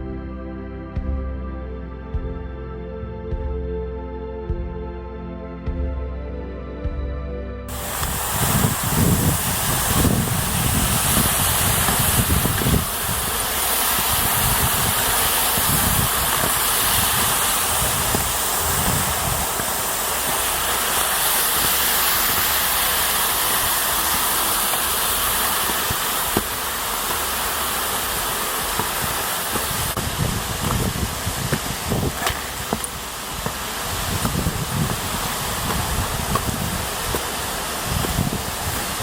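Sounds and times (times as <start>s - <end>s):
waterfall hiss: 7.7s - 39.0s.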